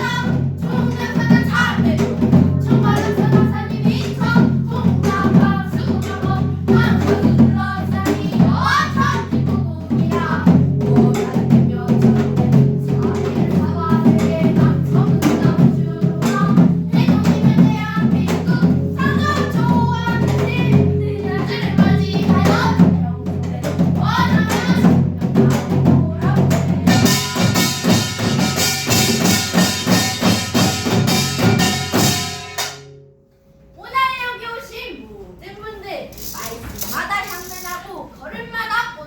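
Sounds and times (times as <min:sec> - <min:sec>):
drums beaten in driving rhythm: 0:00.0 - 0:33.0
small gong clanging: 0:00.0 - 0:33.9
ringing gong: 0:08.4 - 0:33.8.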